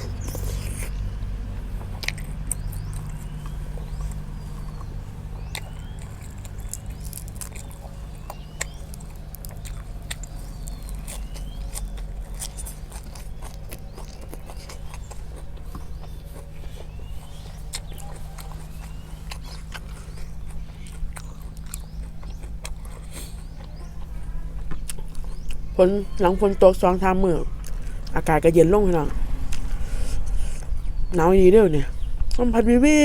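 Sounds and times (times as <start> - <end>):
chewing crisp food: 0.0 - 31.2
low rumble: 0.0 - 33.0
bird chirps: 2.1 - 27.2.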